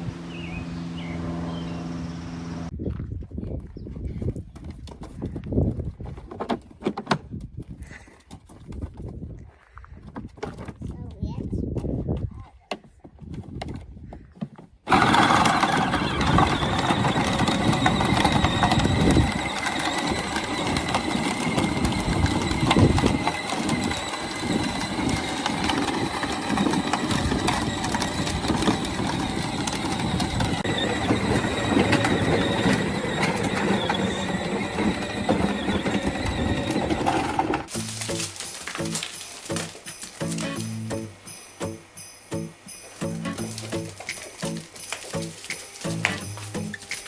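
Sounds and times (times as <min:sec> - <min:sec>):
mechanical running noise: 0:14.9 - 0:37.9.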